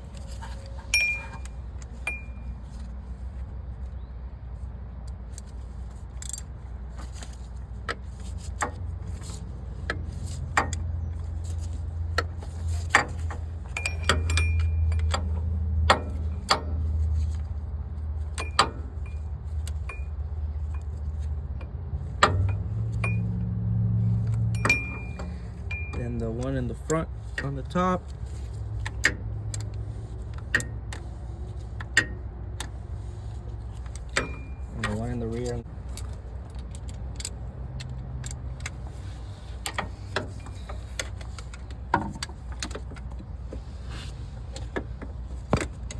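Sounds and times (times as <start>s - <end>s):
wrench clicking on metal bolts: 5.1s - 17.5s, 18.2s - 23.4s, 24.1s - 32.8s, 33.6s - 43.3s.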